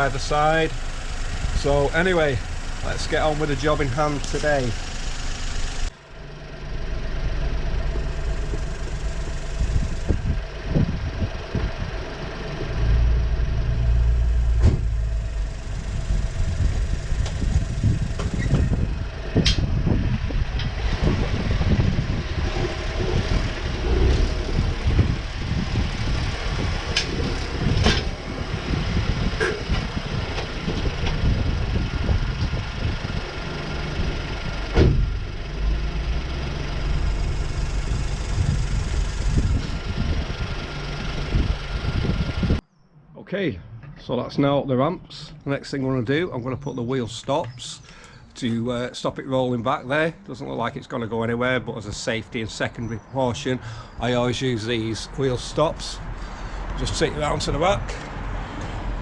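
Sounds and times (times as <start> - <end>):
car engine at low revs: 0.0 - 42.6, 55.1 - 59.0.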